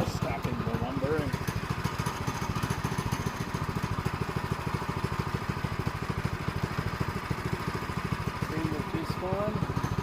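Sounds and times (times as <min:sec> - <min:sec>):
small gasoline engine idling: 0:00.0 - 0:10.0.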